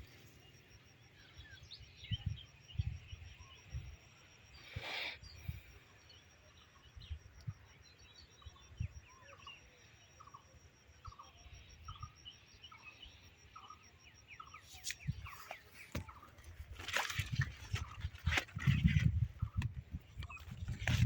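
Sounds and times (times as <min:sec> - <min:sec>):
small birds chirping: 0:00.0 - 0:21.0
rustling: 0:15.5 - 0:19.2
wind buffeting microphone: 0:16.6 - 0:21.0.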